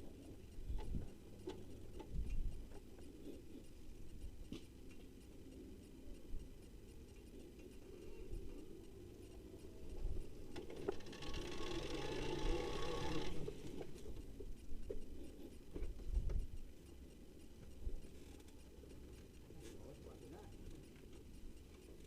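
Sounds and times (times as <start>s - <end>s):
motorcycle engine revving: 10.8s - 14.0s.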